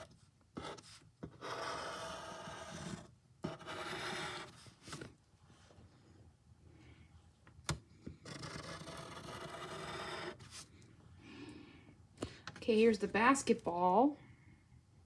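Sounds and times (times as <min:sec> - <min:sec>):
drawing tool scratching on paper: 0:00.0 - 0:04.7, 0:08.2 - 0:10.7.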